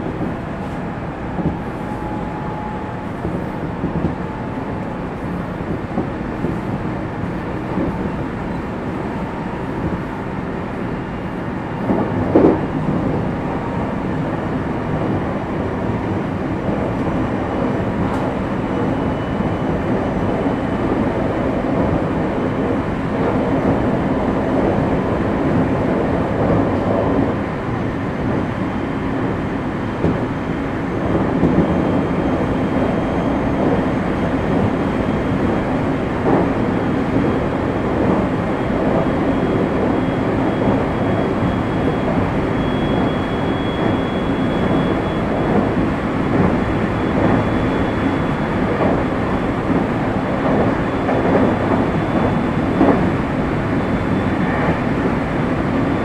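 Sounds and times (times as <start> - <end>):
wheels rumbling on rails: 0.0 - 56.0.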